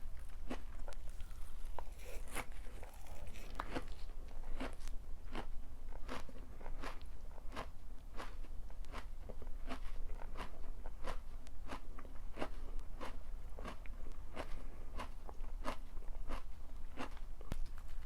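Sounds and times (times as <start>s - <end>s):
person chewing crunchy food: 0.0s - 18.0s.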